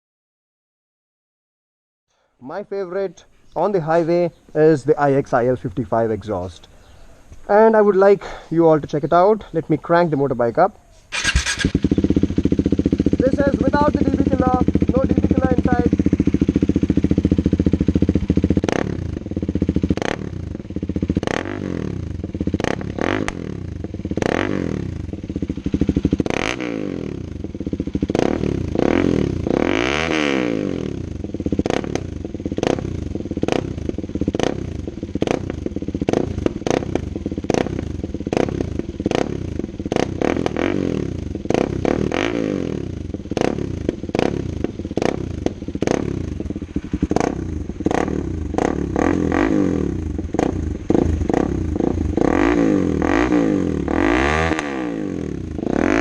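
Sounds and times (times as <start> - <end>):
motorcycle engine revving: 11.1 - 56.0.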